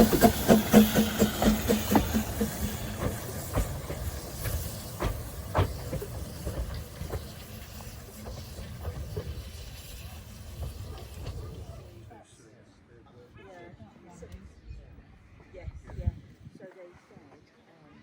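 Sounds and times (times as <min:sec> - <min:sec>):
sharp knocks and clanks: 0:00.0 - 0:11.7
steam locomotive hissing: 0:00.0 - 0:12.1.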